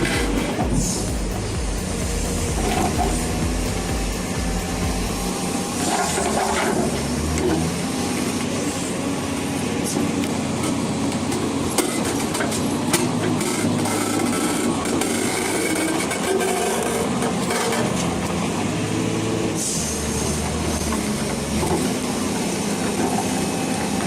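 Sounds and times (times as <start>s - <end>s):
low drone: 0.0s - 10.9s
heavy vehicle engine running: 0.0s - 24.0s.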